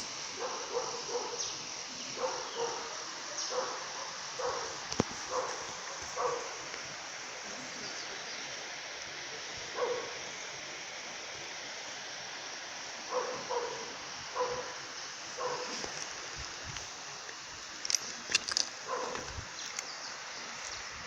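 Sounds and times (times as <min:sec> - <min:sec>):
steady rushing hiss: 0:00.0 - 0:21.0
dog barking: 0:00.4 - 0:01.5, 0:02.1 - 0:06.6, 0:09.7 - 0:10.2, 0:13.1 - 0:14.8, 0:15.4 - 0:15.8, 0:18.8 - 0:19.3.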